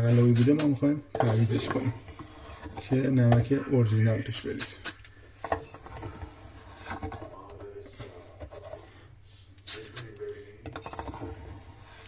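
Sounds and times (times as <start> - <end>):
metal spoon scraping coarse salt: 0.0 - 3.2, 5.6 - 7.4, 10.8 - 12.0.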